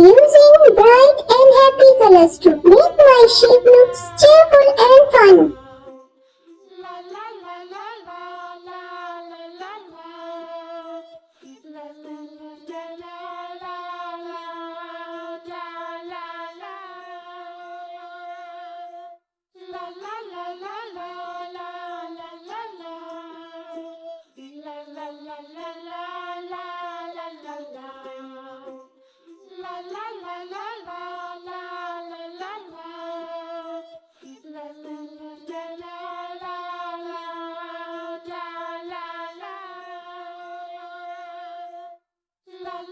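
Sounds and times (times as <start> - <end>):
child-like voice singing: 0.0 - 5.6.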